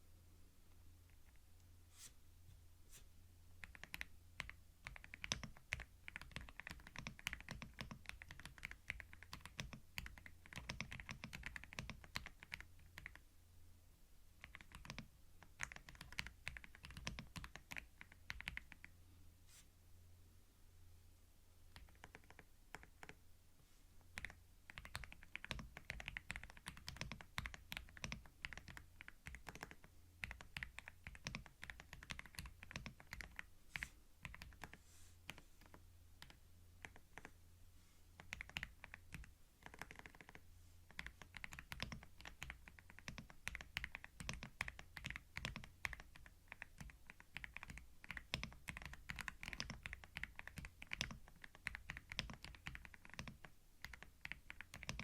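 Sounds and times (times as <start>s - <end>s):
faint low hum: 0.0s - 55.0s
keyboard typing clicks: 38.2s - 55.0s.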